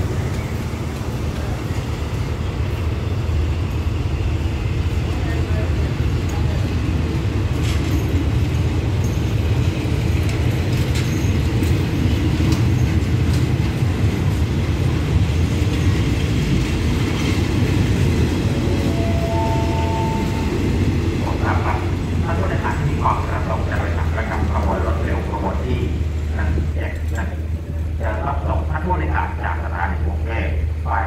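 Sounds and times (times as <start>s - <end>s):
train coaches rumbling past: 0.0s - 31.0s
two-note tone: 18.7s - 20.6s.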